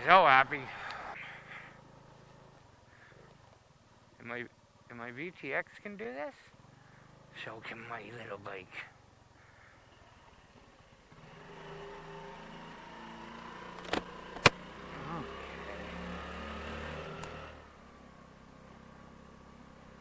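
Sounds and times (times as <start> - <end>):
motorcycle engine under throttle: 9.0 - 20.0
sharp clicks: 17.1 - 17.4.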